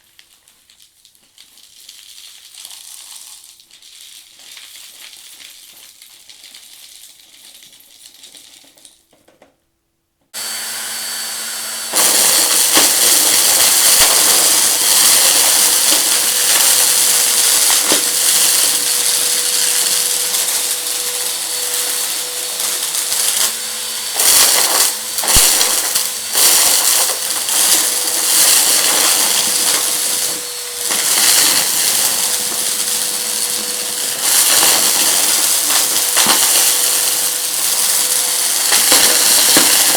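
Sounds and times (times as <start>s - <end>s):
debris crackling in vacuum: 10.4s - 39.9s
vacuum cleaner running: 10.4s - 39.9s.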